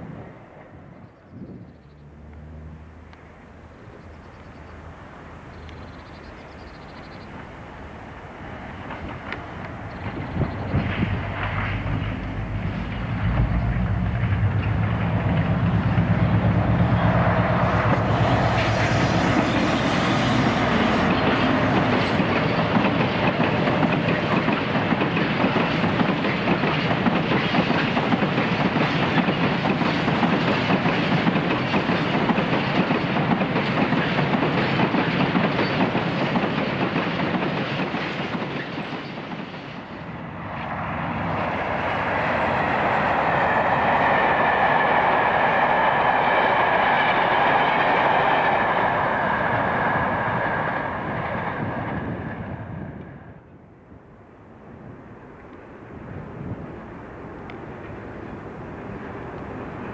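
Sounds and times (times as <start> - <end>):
another train passing: 0.0 - 59.9
diesel locomotive engine running: 1.6 - 52.8.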